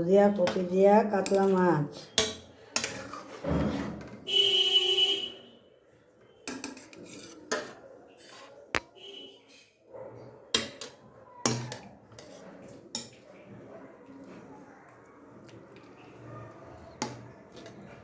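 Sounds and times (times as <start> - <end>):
metal cookware clanking: 1.2 - 4.1, 10.6 - 13.2.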